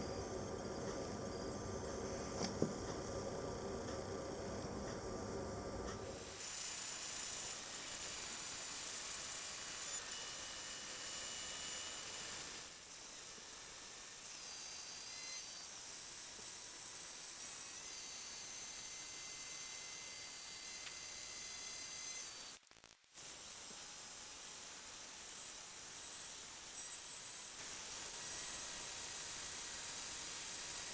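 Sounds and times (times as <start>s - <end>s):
machine tool hissing and whining: 6.0s - 22.6s, 23.2s - 30.9s.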